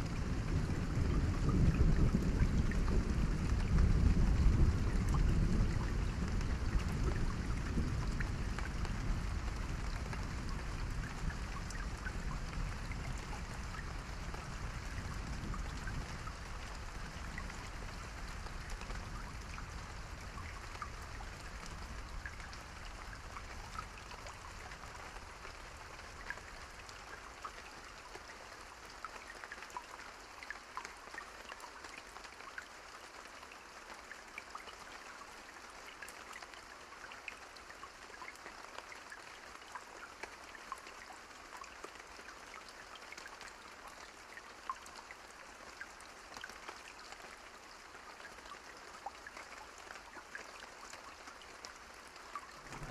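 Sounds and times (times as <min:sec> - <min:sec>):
low rumble of thunder: 0:00.0 - 0:26.2, 0:52.5 - 0:52.9
rain falling: 0:00.0 - 0:52.9
raindrops ticking close by: 0:00.0 - 0:52.9.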